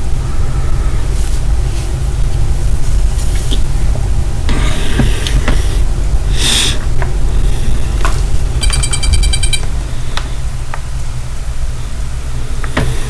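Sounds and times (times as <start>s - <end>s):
rapid electronic beeping: 8.6s - 9.7s.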